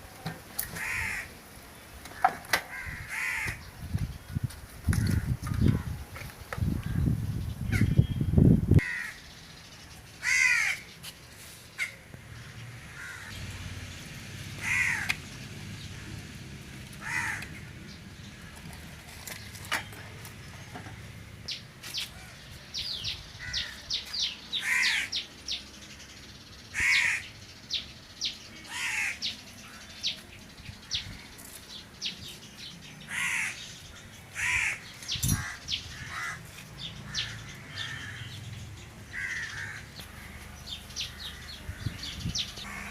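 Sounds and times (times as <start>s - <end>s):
crows cawing: 0.7s - 1.3s, 2.1s - 3.7s, 8.8s - 9.2s, 10.2s - 10.9s, 12.9s - 13.4s, 14.6s - 15.2s, 17.0s - 17.6s, 23.4s - 24.0s, 24.6s - 25.2s, 26.7s - 27.3s, 28.7s - 30.0s, 33.0s - 38.4s, 39.1s - 42.9s.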